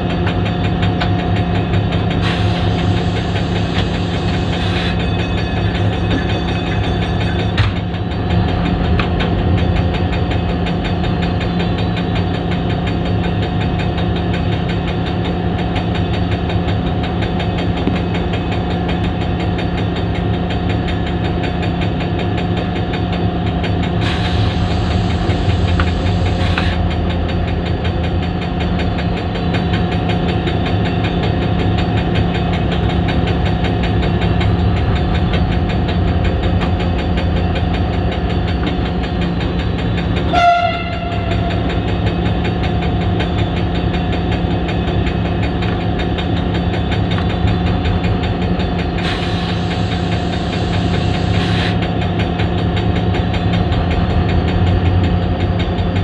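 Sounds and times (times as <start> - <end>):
diesel locomotive engine idling: 0.0 - 56.0.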